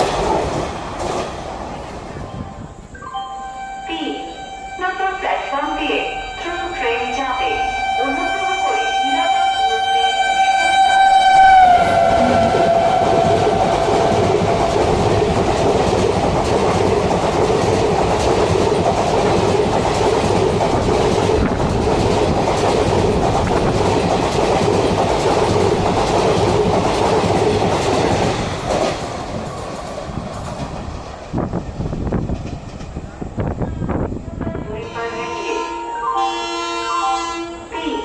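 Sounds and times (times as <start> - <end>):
train wheels rushing on rails: 0.0 - 2.9, 6.1 - 35.0
train horn: 3.6 - 14.7, 34.4 - 38.0.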